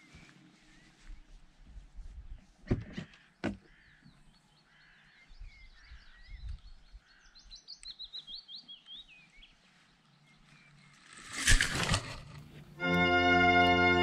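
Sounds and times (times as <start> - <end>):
songbirds singing and chirping: 0.0 - 12.8.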